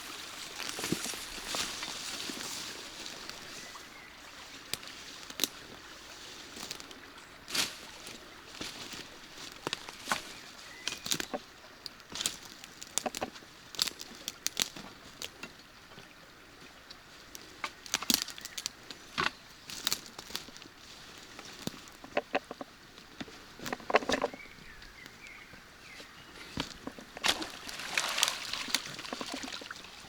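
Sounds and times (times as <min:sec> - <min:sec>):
crunching footsteps: 0:00.0 - 0:03.7, 0:04.7 - 0:11.4, 0:17.3 - 0:29.9.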